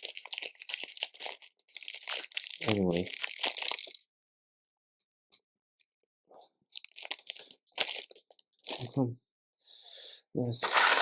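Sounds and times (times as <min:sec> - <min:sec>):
plastic pieces rustling by hand: 0:10.6 - 0:11.0.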